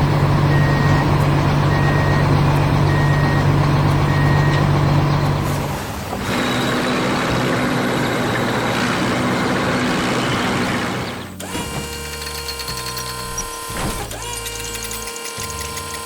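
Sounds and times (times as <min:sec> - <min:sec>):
mechanical machine noise: 0:00.5 - 0:16.0.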